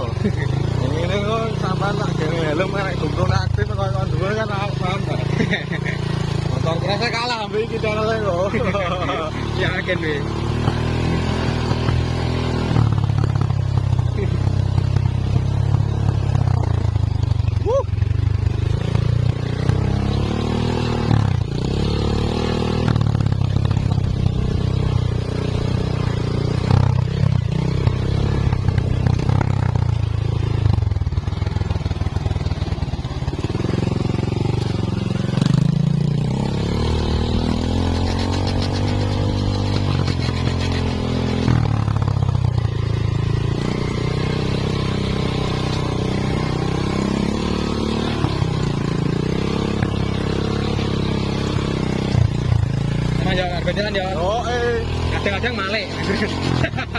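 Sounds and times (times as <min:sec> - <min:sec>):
chainsaw cutting under load: 0:33.6 - 0:41.9, 0:55.0 - 0:56.9.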